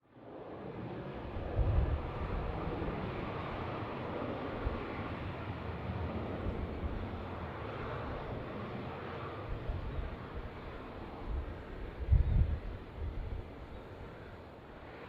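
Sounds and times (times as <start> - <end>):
jet airliner rumble: 0.2 - 15.0
wind on microphone: 1.3 - 3.2, 11.2 - 14.2.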